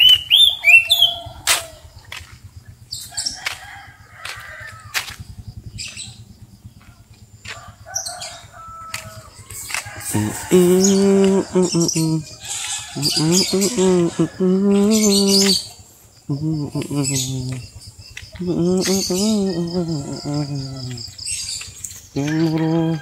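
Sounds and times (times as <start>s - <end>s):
birds chirping: 0.0s - 23.0s
chickens: 0.4s - 2.4s, 5.9s - 23.0s
faint low rumble: 1.1s - 22.6s
low pitched call: 8.1s - 23.0s.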